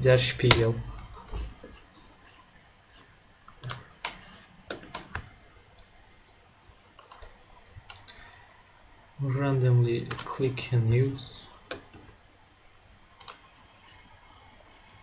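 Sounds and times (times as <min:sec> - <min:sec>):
mouse and keyboard clicks: 0:03.6 - 0:05.3.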